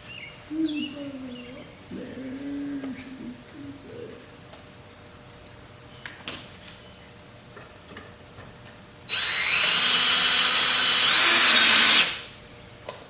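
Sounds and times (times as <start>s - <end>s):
power drill driving screw: 9.1s - 12.3s.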